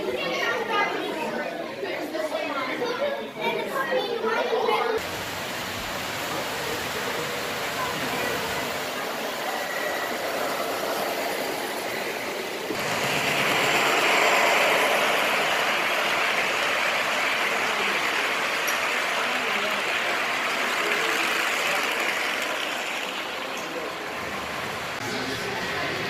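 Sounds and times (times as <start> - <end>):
model train rolling: 5.0 - 26.0.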